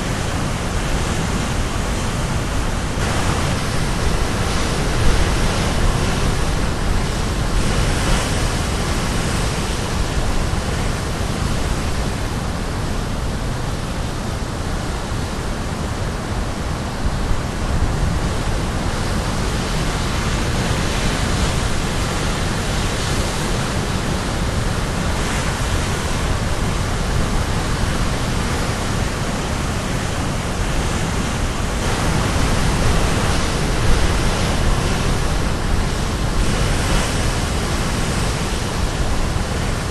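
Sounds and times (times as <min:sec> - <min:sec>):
sea waves crashing on shore: 0:00.0 - 0:39.9.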